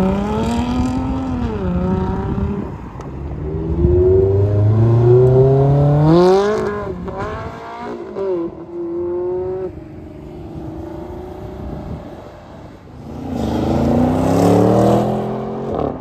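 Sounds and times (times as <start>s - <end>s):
sports car engine accelerating: 0.0s - 12.1s, 12.9s - 16.0s
car engine revving hard: 13.0s - 16.0s.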